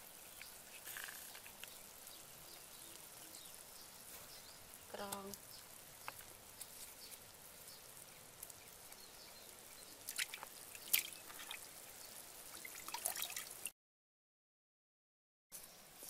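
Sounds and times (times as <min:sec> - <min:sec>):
faint hiss: 0:00.0 - 0:13.7
liquid dripping into pot: 0:12.5 - 0:13.7.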